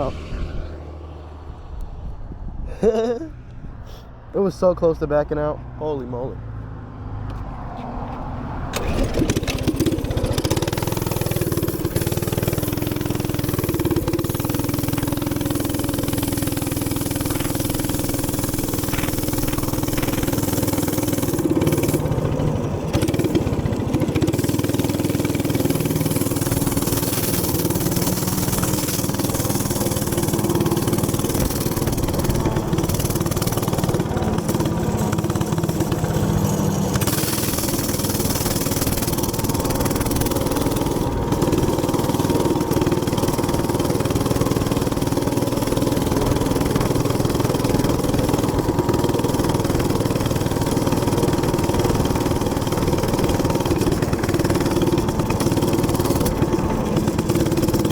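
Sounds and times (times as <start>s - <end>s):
small gas engine running: 0.0s - 1.9s, 5.8s - 57.9s
wind noise: 0.0s - 4.0s.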